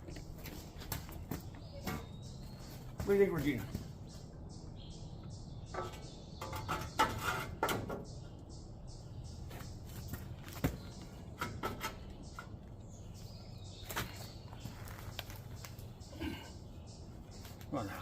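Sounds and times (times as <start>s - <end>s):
parts knocking and clattering: 5.7s - 8.2s, 10.0s - 12.8s.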